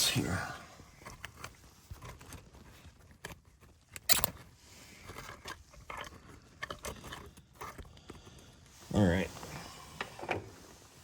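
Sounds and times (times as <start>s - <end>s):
camera handling clicks and rustles: 1.1s - 7.8s.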